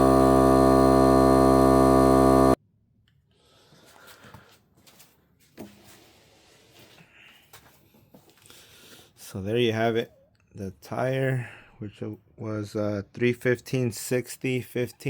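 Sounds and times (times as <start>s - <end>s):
loud electrical drone: 0.0s - 2.6s.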